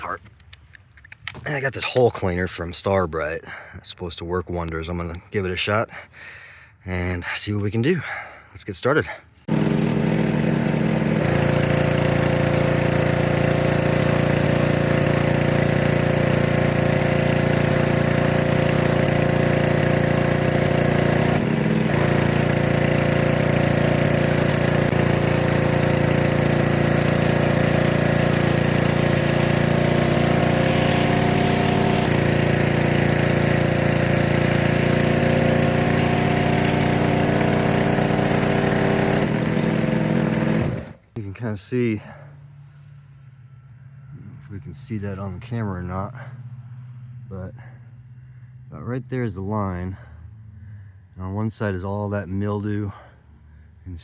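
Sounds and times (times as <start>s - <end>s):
pressure washer spraying: 9.5s - 41.0s.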